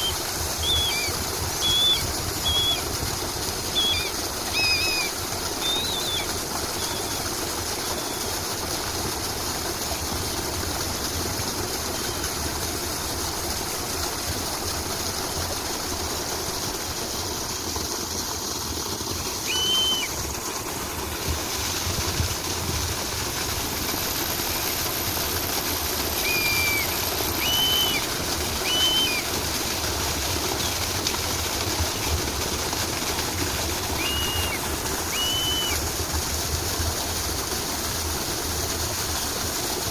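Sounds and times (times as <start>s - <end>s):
bird chirps: 0.0s - 2.8s, 3.7s - 7.2s, 19.5s - 20.1s, 26.2s - 28.0s, 28.6s - 29.2s, 34.0s - 35.8s
stream water rushing: 0.0s - 39.9s
thin high steady tone: 23.8s - 29.3s, 33.8s - 35.8s.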